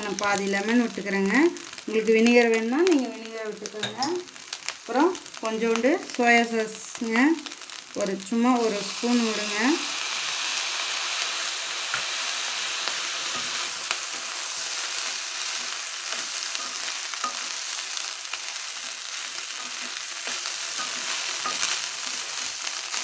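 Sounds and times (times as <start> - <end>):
rice sizzling in a wok: 0.0 - 23.0
spatula scraping and tapping pan: 15.6 - 17.6, 18.8 - 22.5.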